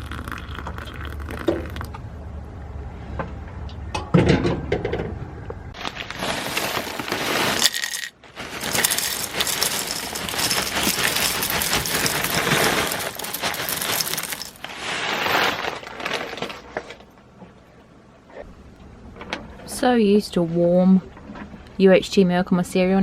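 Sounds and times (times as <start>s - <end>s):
cereal poured into a bowl: 5.8s - 16.6s.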